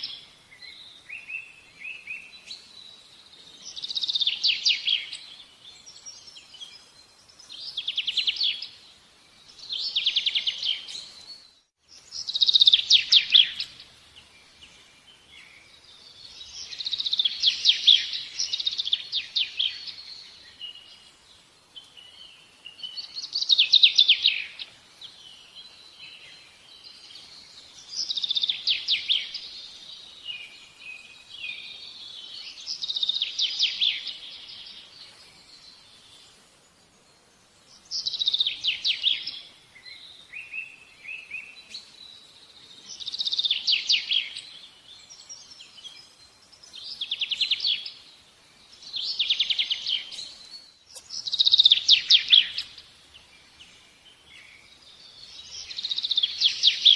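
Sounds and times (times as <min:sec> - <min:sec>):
songbird trilling: 0:48.8 - 0:52.9.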